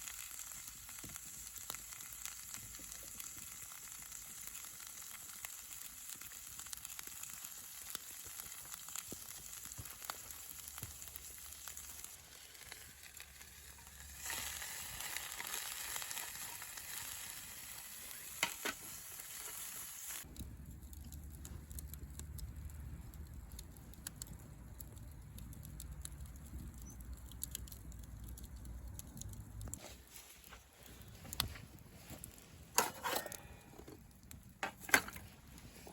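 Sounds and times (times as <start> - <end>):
food sizzling in a hot pan: 0.0 - 20.3
low rumble with sharp crackles: 20.2 - 29.8.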